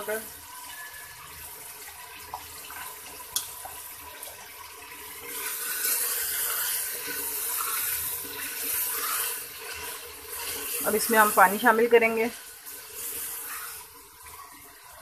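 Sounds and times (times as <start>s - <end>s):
meat sizzling in hot oil: 0.0s - 15.0s
wooden spatula stirring: 5.3s - 15.0s.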